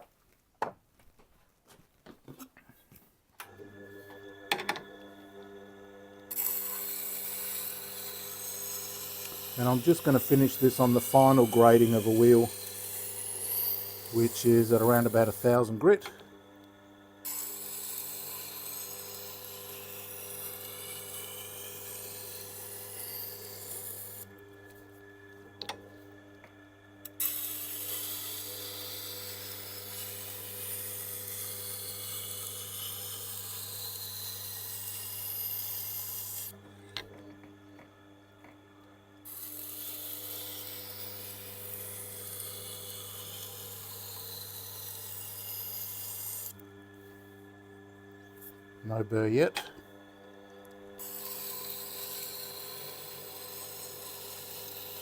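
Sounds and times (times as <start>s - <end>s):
grinder motor hum: 3.4s - 55.0s
knife grinding on wheel: 6.3s - 16.1s, 17.2s - 24.3s, 27.1s - 36.6s, 39.3s - 46.6s, 51.0s - 55.0s.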